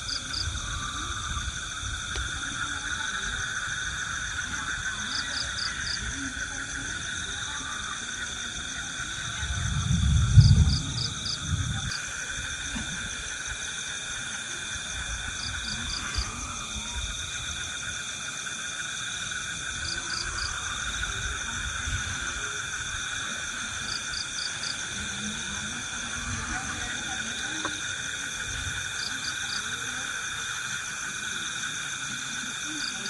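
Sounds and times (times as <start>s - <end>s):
low rumble on microphone: 0.0s - 13.8s
insect chorus: 0.0s - 33.0s.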